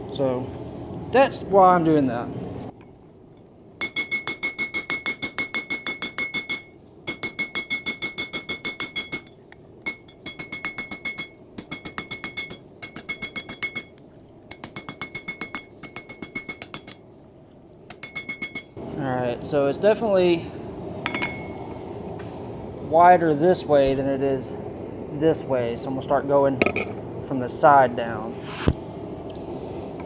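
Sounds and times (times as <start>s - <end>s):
anvil ringing: 3.8s - 13.9s, 14.5s - 17.0s, 17.9s - 18.8s, 21.0s - 21.7s
hammer striking steel on anvil: 3.8s - 13.9s, 14.5s - 17.0s, 17.9s - 18.8s, 21.1s - 21.7s.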